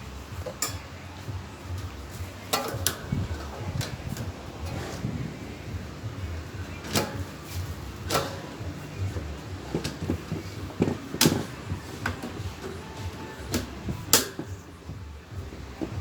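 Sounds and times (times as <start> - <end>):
plastic fan parts clicking: 0.4 - 16.0
low rumble: 3.0 - 6.8.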